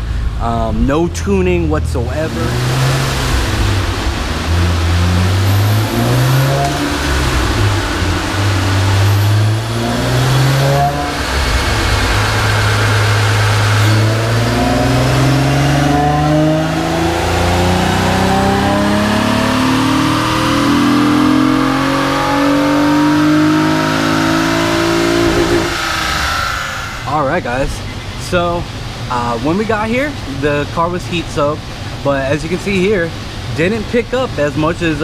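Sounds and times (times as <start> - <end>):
engine revving at full throttle: 2.0 - 27.4.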